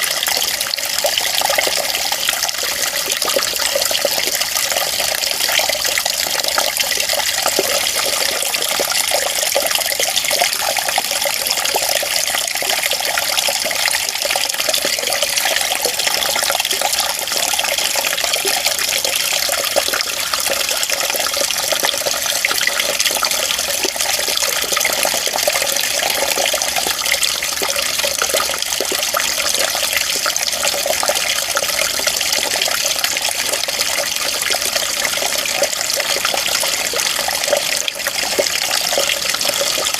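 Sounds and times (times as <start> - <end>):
running water flowing: 0.0 - 39.9.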